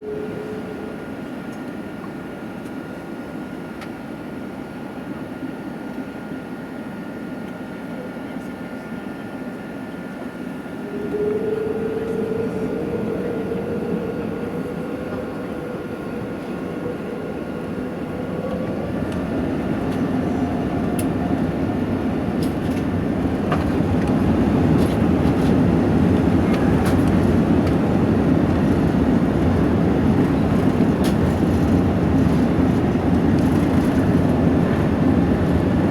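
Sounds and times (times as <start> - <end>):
jet engines rumbling: 10.4 - 35.9
rising engine tone: 10.8 - 30.4.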